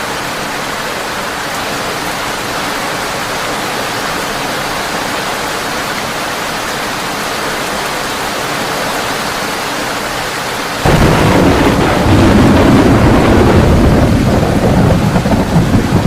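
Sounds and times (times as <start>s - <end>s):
heavy rain on a tin roof: 0.0s - 16.0s
loud deep thunder clap: 10.8s - 16.0s.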